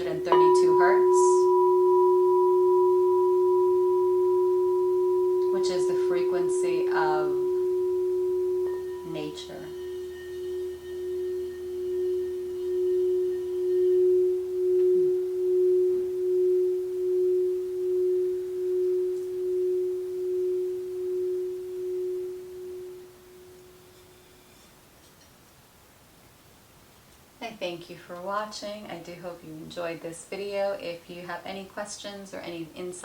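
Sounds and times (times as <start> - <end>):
singing bowl sustained tone: 0.0 - 24.7.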